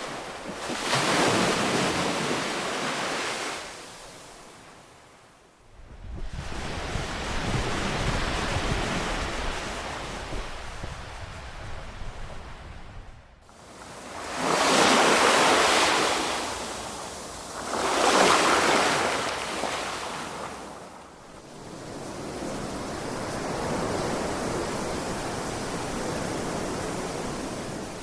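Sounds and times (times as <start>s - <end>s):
waves crashing on beach: 0.0s - 5.0s, 6.0s - 28.0s.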